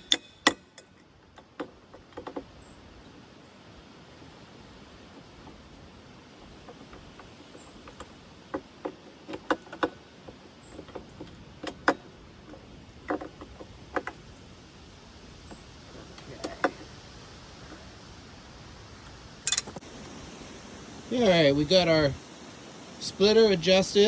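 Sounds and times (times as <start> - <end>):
hand tools tapping on metal: 0.0 - 2.6, 4.9 - 14.4, 15.4 - 17.9, 19.4 - 19.8.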